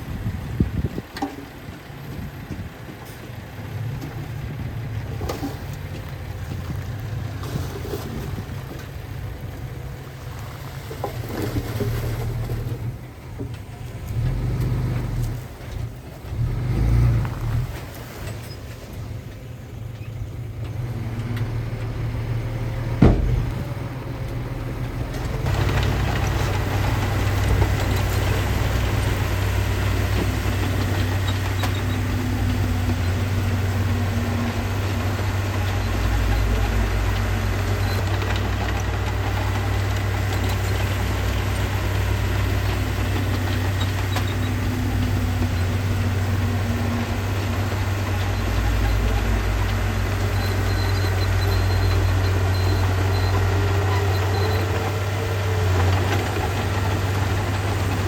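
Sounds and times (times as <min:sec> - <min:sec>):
heavy machinery diesel engine: 0:00.0 - 0:58.0
sharp knock: 0:23.0 - 0:23.6.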